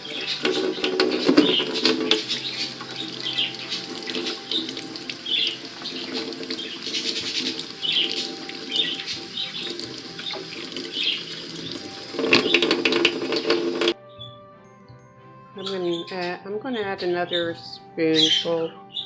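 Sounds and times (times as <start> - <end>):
tap water running over seeds: 0.0 - 14.0.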